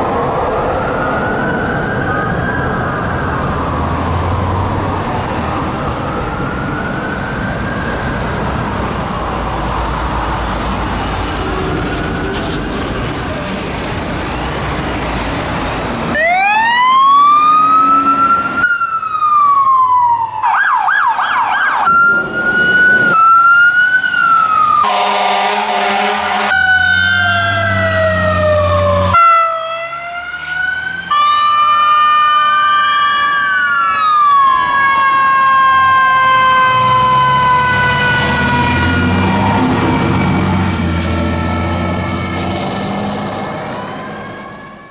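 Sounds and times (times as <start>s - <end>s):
diesel engines rumbling: 0.0s - 44.9s
sirens wailing: 0.0s - 44.9s
siren yelp: 0.4s - 9.6s, 16.1s - 44.9s
air horn blast: 24.8s - 26.8s.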